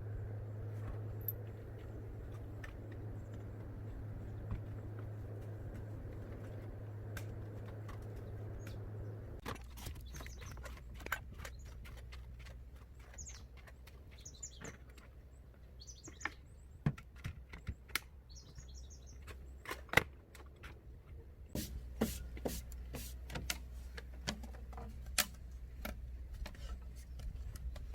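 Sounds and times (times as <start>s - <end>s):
low steady hum: 0.0s - 16.0s
small birds chirping: 8.0s - 19.7s.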